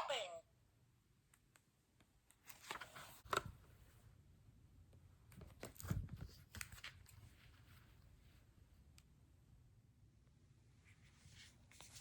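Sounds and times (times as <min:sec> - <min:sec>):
book rustling: 0:02.4 - 0:04.0, 0:05.4 - 0:08.4.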